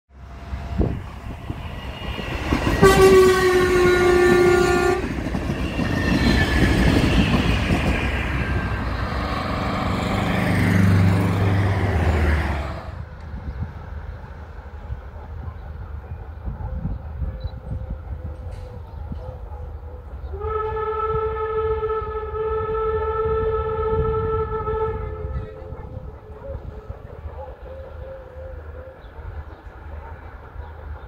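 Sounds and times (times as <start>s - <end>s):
outdoor background: 0.1s - 31.0s
train passing rumble: 0.1s - 31.0s
train horn blast: 2.7s - 5.2s, 20.2s - 26.8s.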